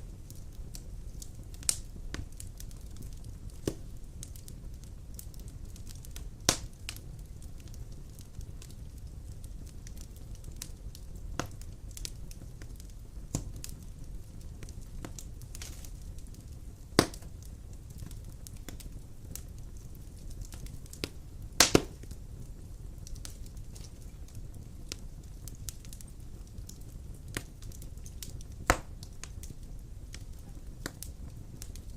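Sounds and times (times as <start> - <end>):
fire crackling and popping: 0.0 - 31.9
wood fire rumbling: 0.0 - 31.9.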